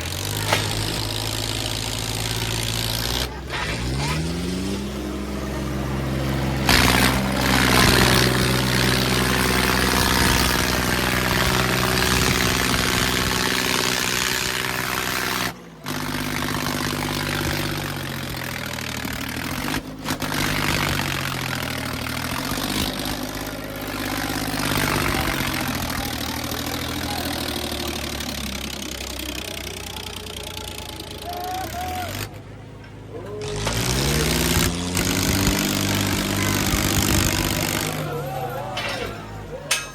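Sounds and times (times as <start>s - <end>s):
tractor diesel engine revving: 0.0s - 39.9s.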